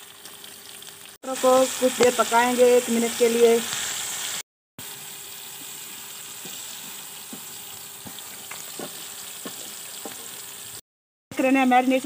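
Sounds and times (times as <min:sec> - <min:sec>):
vegetables sizzling in a pan: 0:00.0 - 0:10.8, 0:11.4 - 0:12.0.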